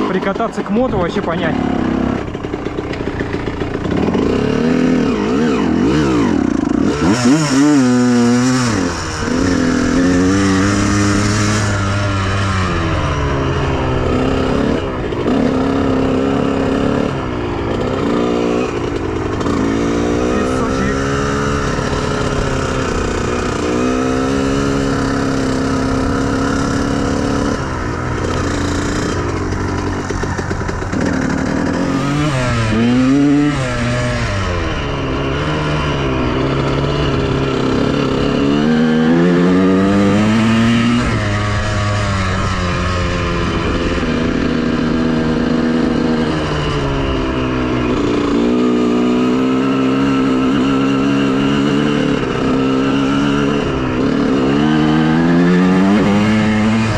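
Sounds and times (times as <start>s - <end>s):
motocross engine revving: 0.0s - 56.9s.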